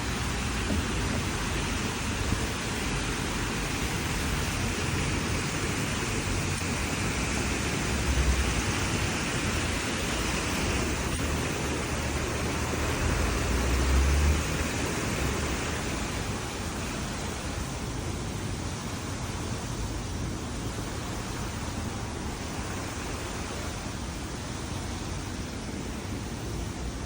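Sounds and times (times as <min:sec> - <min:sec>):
steady outdoor hiss: 0:00.0 - 0:27.0.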